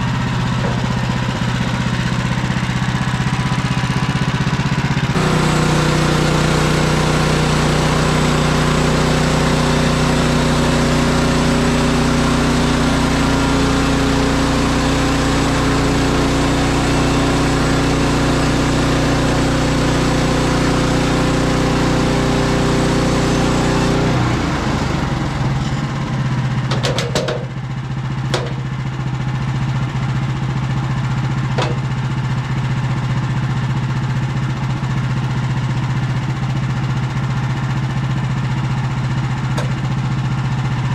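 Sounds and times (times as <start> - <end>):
band saw cutting log: 0.0 - 4.3, 5.1 - 25.9, 31.5 - 32.1, 39.4 - 40.2
gas engine running: 0.0 - 40.9
sharp knocks: 26.7 - 27.5, 28.3 - 28.7, 31.6 - 31.9, 39.6 - 39.8.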